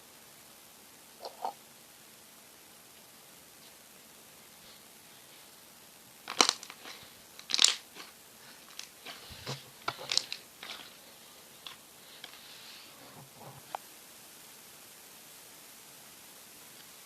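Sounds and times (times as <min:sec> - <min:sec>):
slime crackling and popping: 0:06.3 - 0:08.1.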